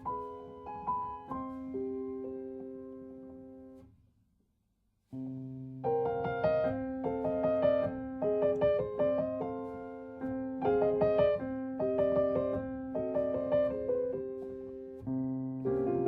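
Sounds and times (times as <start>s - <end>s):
piano music: 0.0s - 3.8s, 5.2s - 16.0s.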